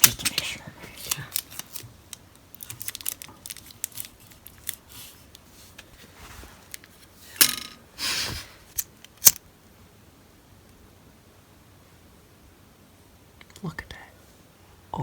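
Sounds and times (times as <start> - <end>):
sharp clicks of handled objects: 8.8 - 9.4.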